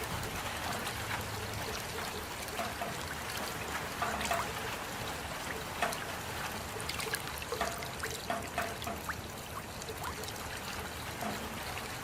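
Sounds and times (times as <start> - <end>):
steady rain: 0.0 - 12.0
water trickling: 0.0 - 12.0
water drops plinking: 1.4 - 4.7, 6.7 - 10.4.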